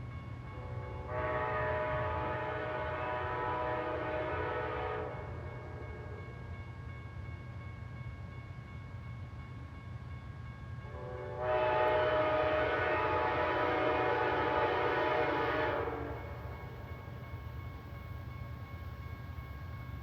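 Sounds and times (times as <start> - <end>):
low rumble of train: 0.0 - 20.0
locomotive air horn: 0.6 - 6.2, 10.9 - 16.4.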